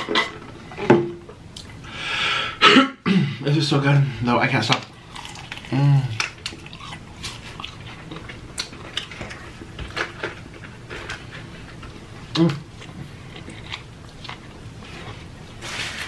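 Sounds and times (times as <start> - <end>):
wet chewing and lip-smacking: 4.9 - 9.3
person humming mm: 5.7 - 6.2.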